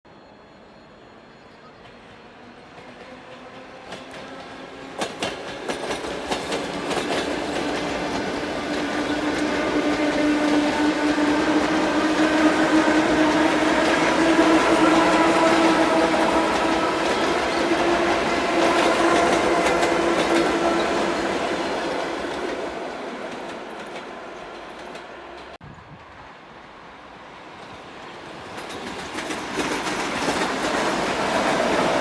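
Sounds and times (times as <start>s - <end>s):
rumble of train wheels: 0.1s - 32.0s
train hum: 0.1s - 32.0s
train wheels clicking over rail joints: 2.8s - 21.2s, 27.6s - 32.0s.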